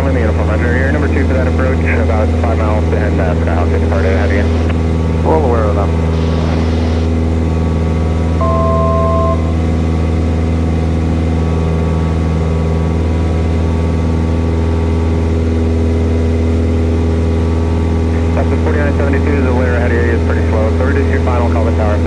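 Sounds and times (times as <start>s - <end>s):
aircraft engine and propeller droning: 0.0s - 22.0s
two-note electronic tone: 8.4s - 9.8s.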